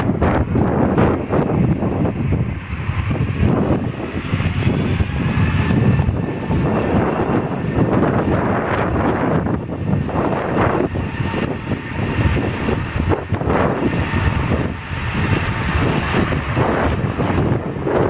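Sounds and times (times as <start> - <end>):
jet airliner engine rumble: 0.0 - 18.0.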